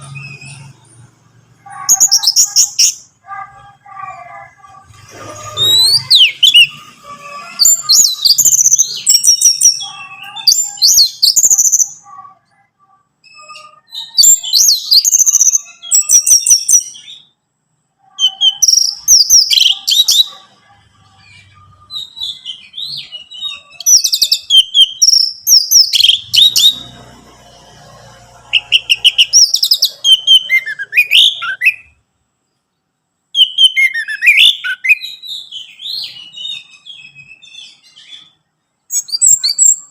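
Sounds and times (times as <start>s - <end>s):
thrush singing: 0.0s - 17.3s, 18.0s - 32.0s.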